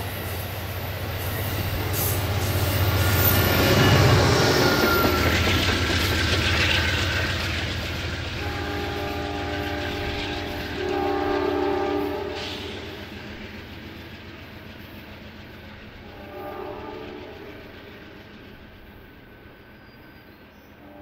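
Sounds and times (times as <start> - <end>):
train rumble: 0.0 - 21.0
train horn blast: 8.4 - 13.1, 16.0 - 17.7, 20.8 - 21.0.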